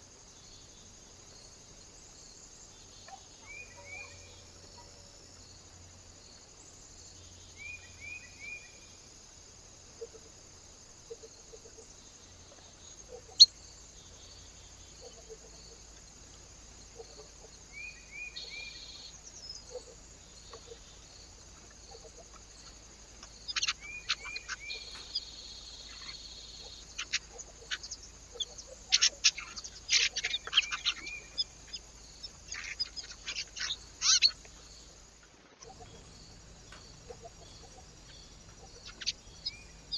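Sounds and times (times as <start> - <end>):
small birds calling: 3.0 - 5.2, 10.0 - 39.9.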